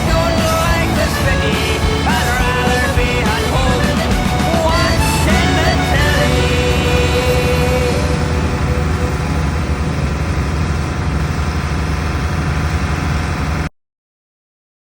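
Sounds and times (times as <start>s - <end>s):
music: 0.0s - 10.4s
heavy machinery engine rumbling: 0.0s - 13.6s.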